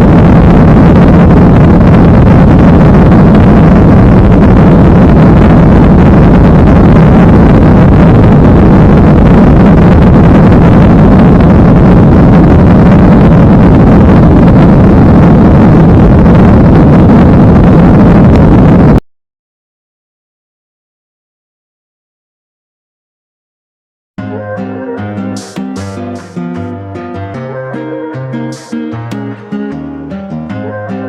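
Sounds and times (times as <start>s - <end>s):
low hum: 0.0s - 19.0s, 24.2s - 31.0s.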